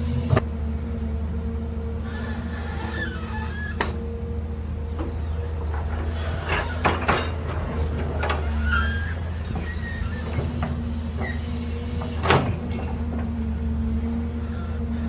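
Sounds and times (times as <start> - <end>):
excavator diesel engine running: 0.0 - 15.0
metallic clanks: 5.0 - 8.8, 9.5 - 13.4.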